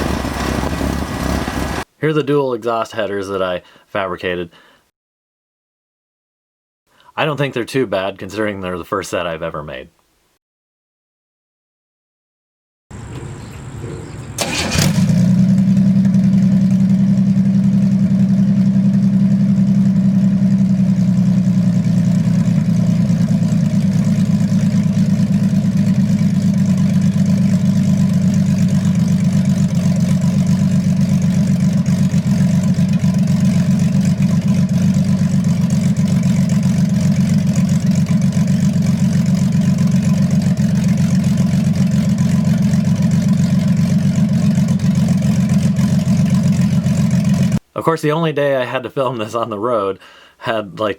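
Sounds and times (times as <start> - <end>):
car engine idling loudly: 0.0 - 1.8, 13.0 - 47.6
engine cranking and catching: 12.9 - 47.6.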